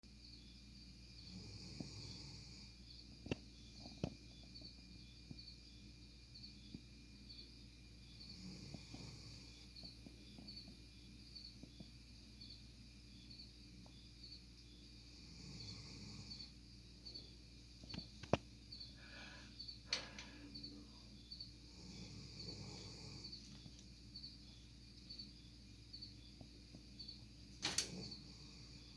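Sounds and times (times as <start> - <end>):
crickets chirping: 0.1 - 28.9
dog snoring softly: 1.2 - 2.8, 8.2 - 10.0, 21.7 - 23.4.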